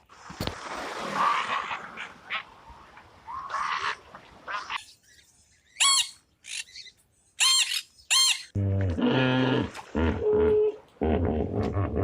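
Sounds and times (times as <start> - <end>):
animal squeaking: 5.8 - 8.6.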